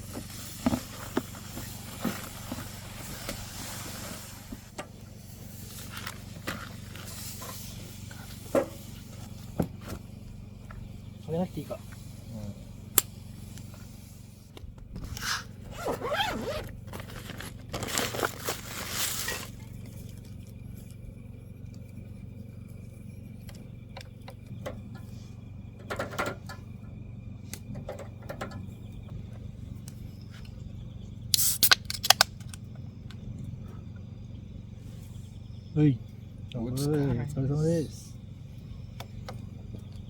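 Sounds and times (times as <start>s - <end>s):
scraping and rustling: 0.0s - 4.7s, 15.1s - 20.3s
steady low hum: 0.0s - 40.0s.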